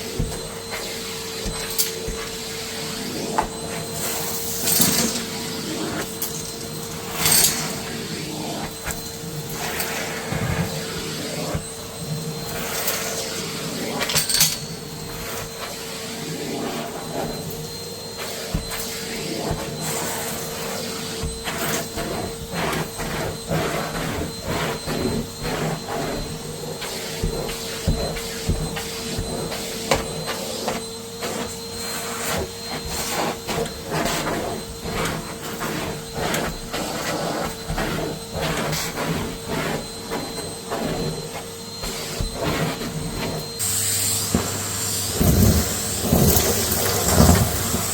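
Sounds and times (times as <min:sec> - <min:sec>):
vacuum cleaner motor whine: 0:00.0 - 0:47.9
grit rattling up vacuum hose: 0:44.3 - 0:47.9.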